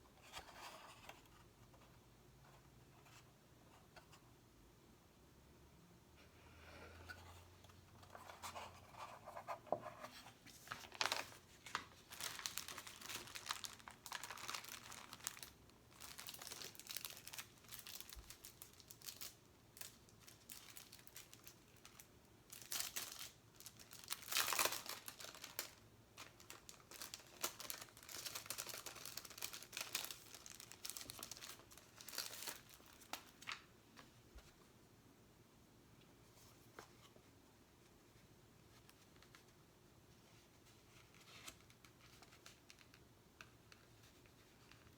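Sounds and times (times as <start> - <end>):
sticker sheets crinkling: 8.1 - 33.7.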